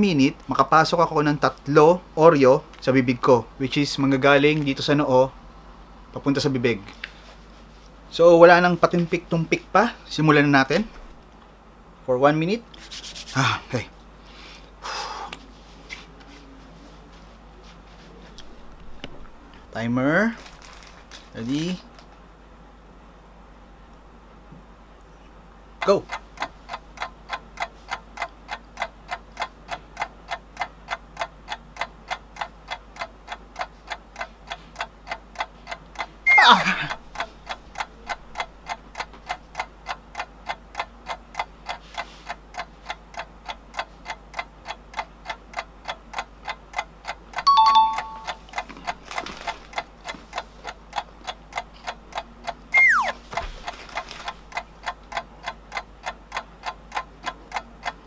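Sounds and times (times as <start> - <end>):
clock ticking: 25.8 - 49.0, 49.6 - 58.0
brief steady tones: 47.5 - 48.4, 52.8 - 53.2
quick downward pitch slide: 52.8 - 53.2.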